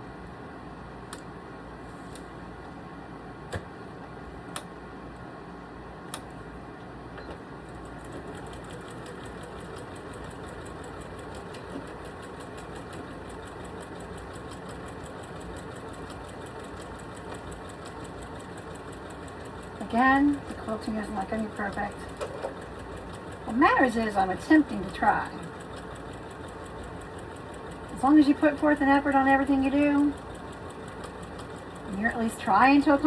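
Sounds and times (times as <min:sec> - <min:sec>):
sewing machine motor hum: 0:07.6 - 0:33.0
sewing machine stitching: 0:07.7 - 0:33.0.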